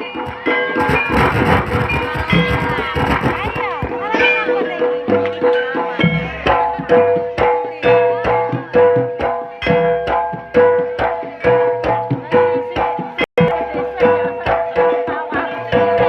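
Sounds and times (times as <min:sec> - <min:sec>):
hand drum strokes: 0:00.0 - 0:05.4.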